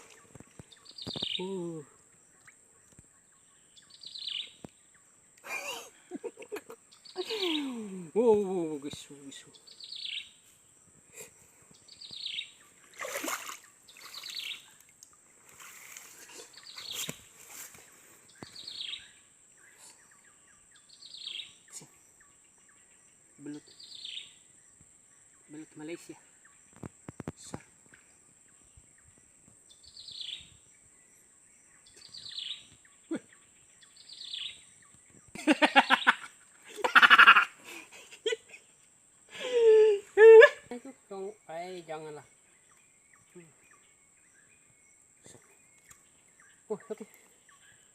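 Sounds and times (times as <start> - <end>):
bird calling with falling trill: 0.0 - 2.5.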